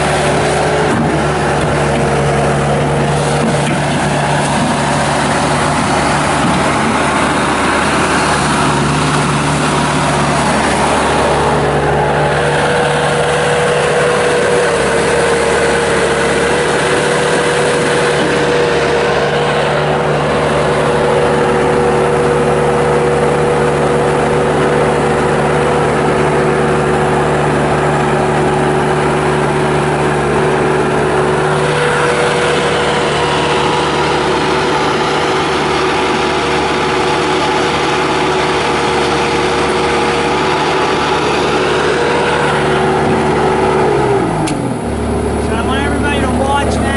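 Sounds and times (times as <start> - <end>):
diesel loader engine running: 0.0 - 46.9
steady whine: 0.0 - 46.9.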